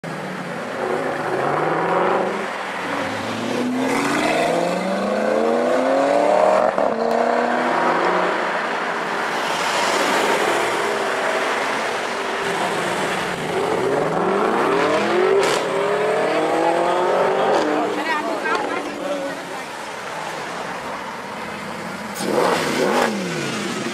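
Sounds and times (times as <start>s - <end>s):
car engine accelerating hard: 22.1s - 23.9s.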